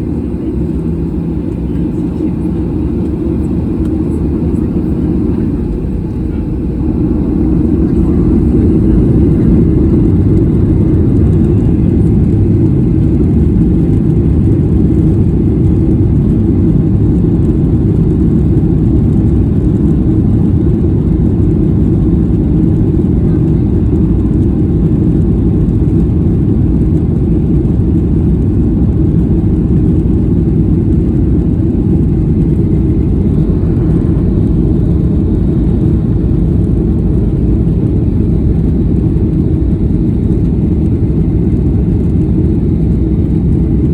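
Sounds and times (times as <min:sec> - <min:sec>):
jet engine and airflow roar: 0:00.0 - 0:43.9.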